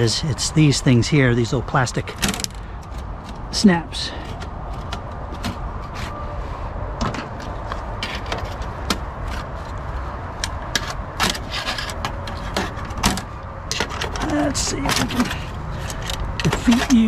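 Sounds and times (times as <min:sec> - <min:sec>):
plastic parts clicking and knocking: 0:02.1 - 0:03.5, 0:04.2 - 0:06.0, 0:10.4 - 0:17.0.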